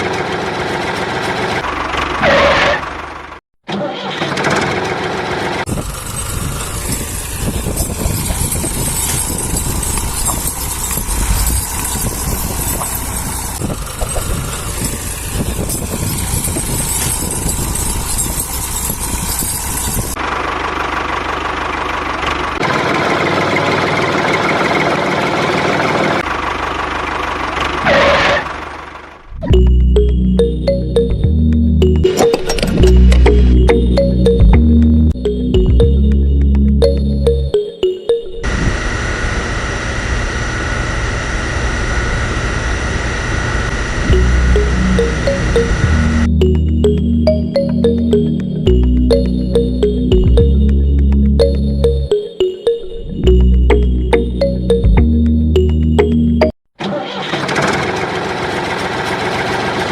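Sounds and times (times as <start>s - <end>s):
motor running steadily: 5.7s - 20.2s.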